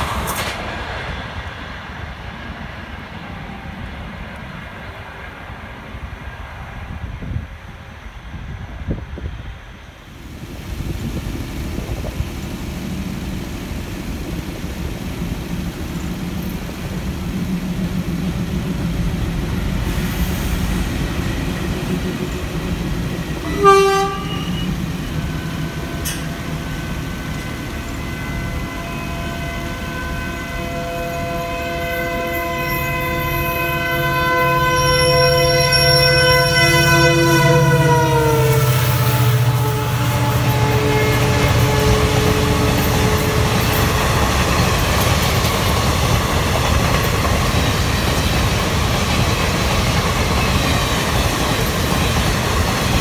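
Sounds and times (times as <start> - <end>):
train coaches rumbling: 0.0 - 53.0
train horn: 23.4 - 44.7.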